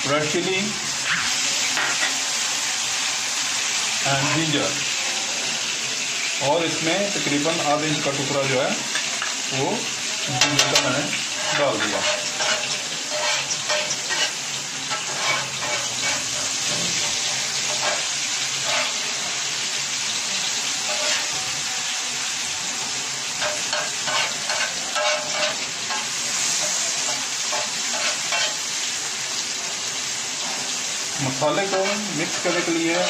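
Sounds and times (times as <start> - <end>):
vegetables sizzling on a griddle: 0.0 - 33.0
spatulas clacking and scraping: 10.4 - 19.0, 20.8 - 21.4, 23.4 - 28.6, 31.5 - 33.0.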